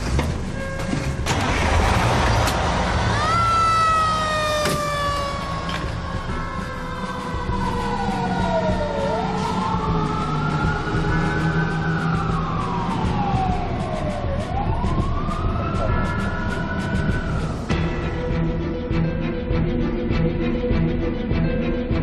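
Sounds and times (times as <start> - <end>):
fire engine siren wailing: 1.3 - 17.7.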